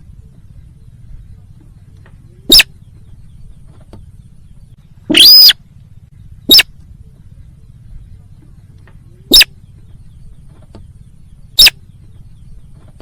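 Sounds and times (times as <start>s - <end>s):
faint low hum: 0.0s - 13.0s
sharp high bird calls: 2.4s - 7.9s, 9.0s - 13.0s.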